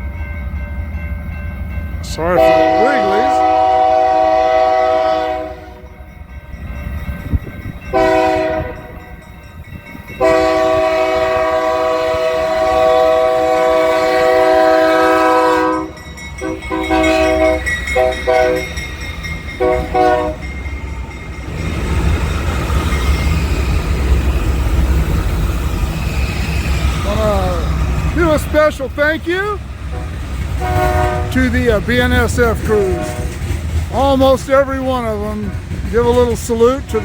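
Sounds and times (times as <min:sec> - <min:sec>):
diesel locomotives rumbling past: 0:00.0 - 0:37.0
locomotive air horn blasts: 0:02.4 - 0:05.9, 0:07.9 - 0:09.0, 0:10.2 - 0:18.7, 0:19.6 - 0:20.4, 0:29.9 - 0:31.5, 0:33.0 - 0:33.3.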